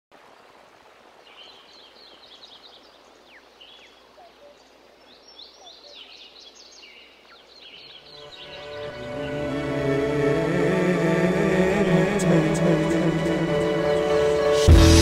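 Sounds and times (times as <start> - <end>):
faint birds chirping: 0.2 - 11.0.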